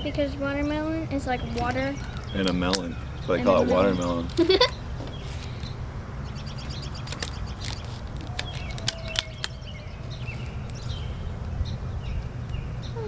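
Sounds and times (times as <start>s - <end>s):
birds chirping: 0.0s - 13.0s
rubber bands snapping: 1.5s - 2.9s, 7.0s - 10.9s.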